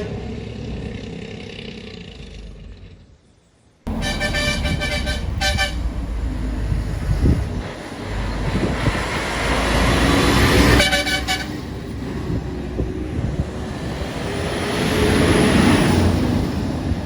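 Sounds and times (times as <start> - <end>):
road traffic with trucks: 0.0 - 17.0
vehicle horn pulsing toot: 3.9 - 6.0, 10.8 - 11.7
vehicle passing loudly: 3.9 - 17.0.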